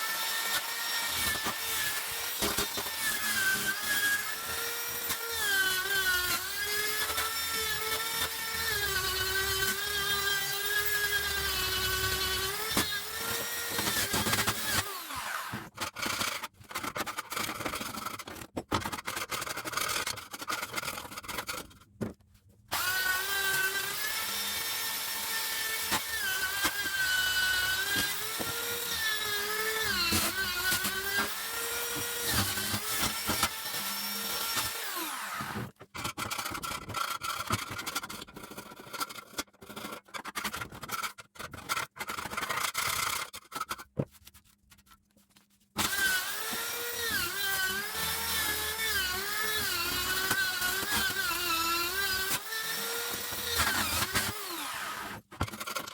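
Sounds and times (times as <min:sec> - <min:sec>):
power tool motor whining: 0:06.4 - 0:15.7, 0:22.7 - 0:35.7, 0:45.8 - 0:55.2.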